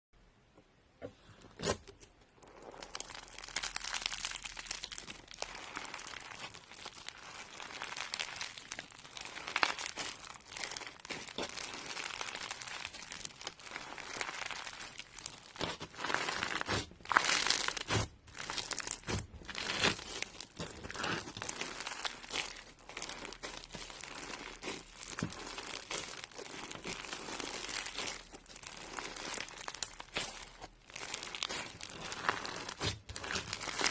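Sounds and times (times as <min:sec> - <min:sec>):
crunchy slime crackling: 0:01.5 - 0:33.9.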